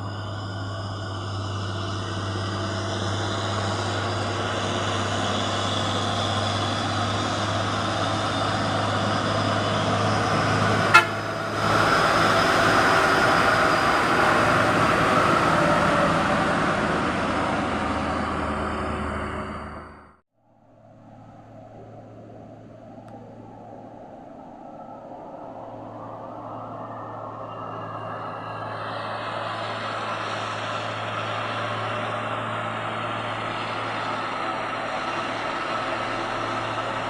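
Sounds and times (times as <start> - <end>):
truck engine running: 0.0 - 20.2, 27.7 - 37.0
vehicle horn: 10.8 - 11.8.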